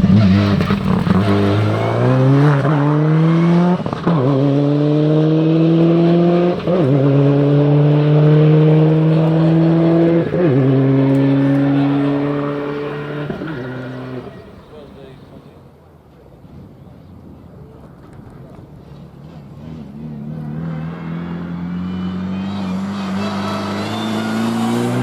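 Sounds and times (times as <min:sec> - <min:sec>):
rally car accelerating through gears: 0:00.0 - 0:15.4, 0:18.8 - 0:25.0.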